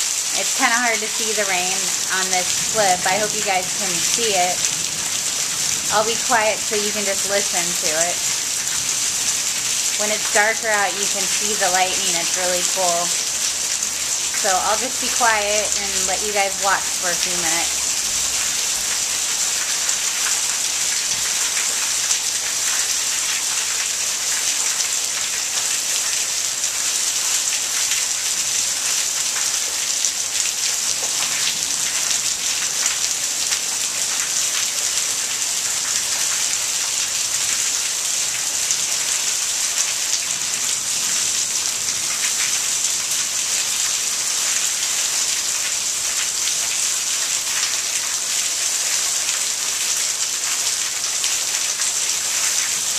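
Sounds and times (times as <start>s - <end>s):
heavy rain pouring: 0.0s - 52.9s.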